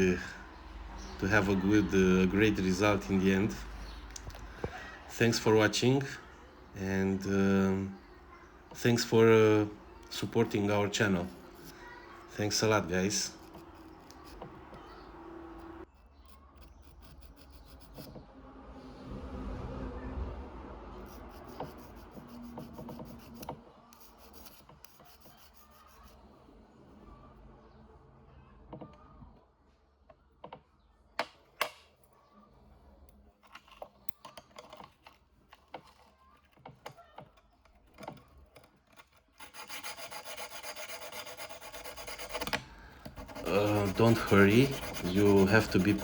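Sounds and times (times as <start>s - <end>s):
sharpening stone scraping steel: 39.4s - 46.0s.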